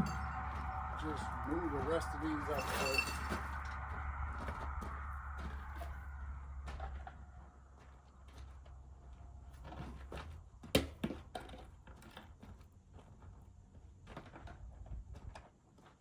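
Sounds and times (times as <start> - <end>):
low hum: 0.0 - 10.6.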